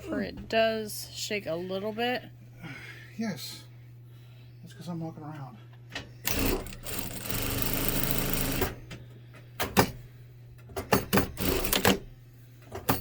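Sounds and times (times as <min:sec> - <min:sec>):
sewing machine running: 0:06.3 - 0:08.8, 0:11.1 - 0:12.1.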